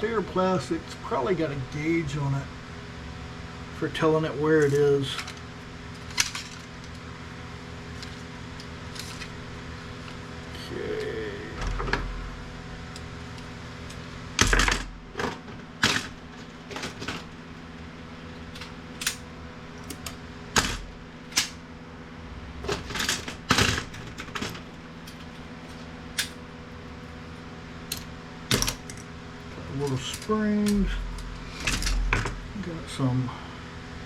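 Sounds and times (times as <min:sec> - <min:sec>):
background hum: 0:00.0 - 0:34.0
plastic and metal parts clacking: 0:06.0 - 0:06.9.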